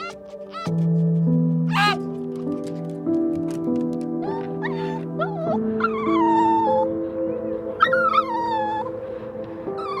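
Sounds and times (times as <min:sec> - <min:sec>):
background music with held notes: 0:00.0 - 0:10.0
animal cry falling in pitch: 0:01.7 - 0:02.1.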